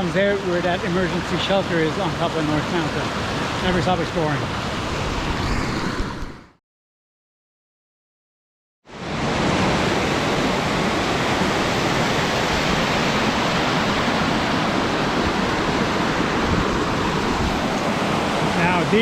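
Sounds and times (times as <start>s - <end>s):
waterfall rushing: 0.0s - 4.7s, 9.2s - 19.0s.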